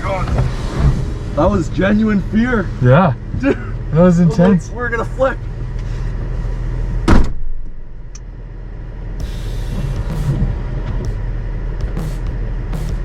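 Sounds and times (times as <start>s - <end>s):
car engine running low: 0.0s - 13.0s.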